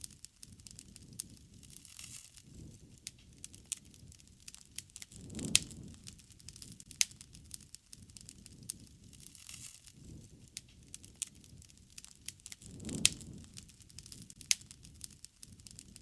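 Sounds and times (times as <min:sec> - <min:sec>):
soft rush of burning flames: 0:00.0 - 0:16.0
wood fire popping and snapping: 0:00.0 - 0:16.0.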